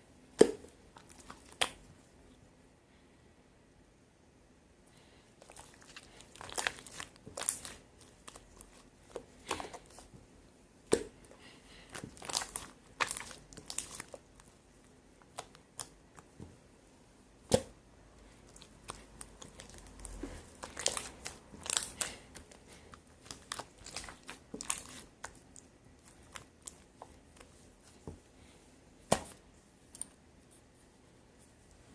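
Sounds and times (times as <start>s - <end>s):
slime squelching and crackling: 0.9s - 1.8s, 5.4s - 10.1s, 10.9s - 14.6s, 18.3s - 28.0s
sharp snaps of slime: 1.5s - 1.8s.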